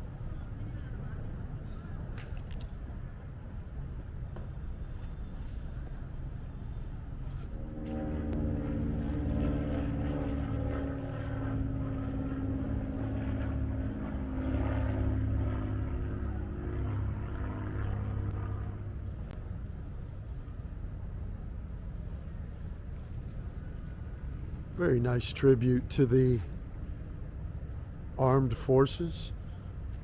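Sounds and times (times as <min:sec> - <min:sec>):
low background hum: 0:00.0 - 0:30.0
engine droning: 0:04.3 - 0:20.9.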